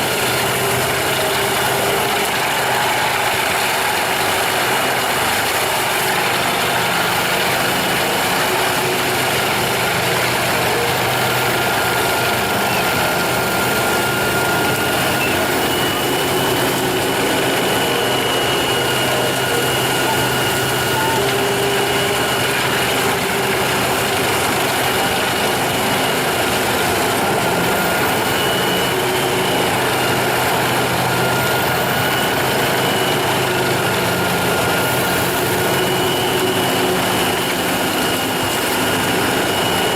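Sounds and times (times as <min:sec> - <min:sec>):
wood chipper engine running: 0:00.0 - 0:39.9.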